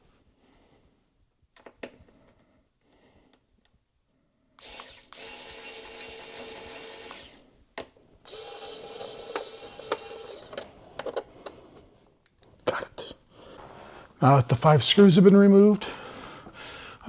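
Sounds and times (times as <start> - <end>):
electric screwdriver whirring: 4.6 - 7.4, 8.3 - 10.8.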